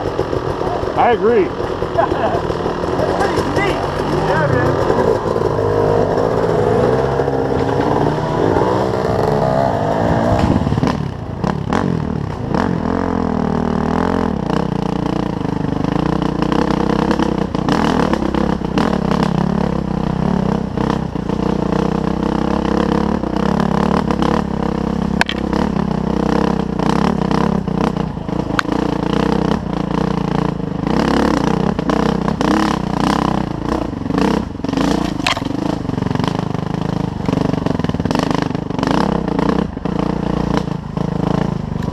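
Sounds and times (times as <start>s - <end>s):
dirt bike engine revving: 0.0s - 41.9s
bike clattering over rough ground: 34.8s - 35.7s.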